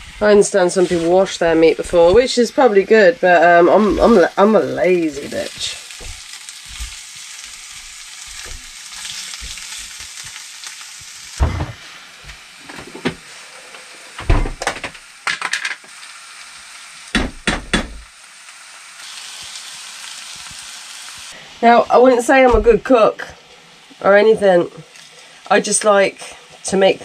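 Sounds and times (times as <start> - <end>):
spatula scraping a pan: 0.0 - 2.4
food sizzling in a pan: 0.0 - 27.0.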